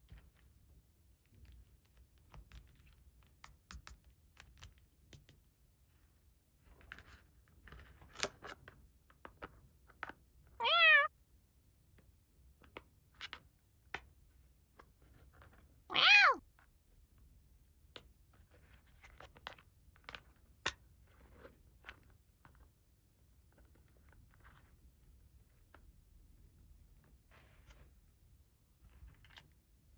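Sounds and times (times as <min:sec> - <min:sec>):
cat meowing: 0:10.6 - 0:11.1, 0:15.9 - 0:16.4.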